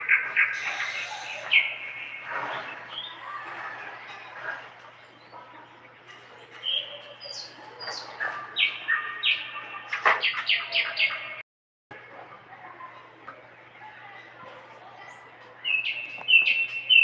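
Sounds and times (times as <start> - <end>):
bird singing: 0.0 - 11.4, 15.0 - 17.0.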